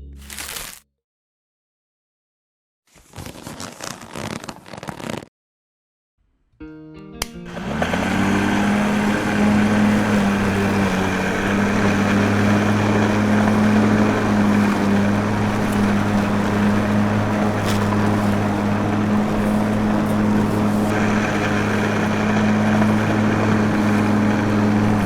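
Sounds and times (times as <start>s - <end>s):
small motor humming: 7.5s - 25.0s.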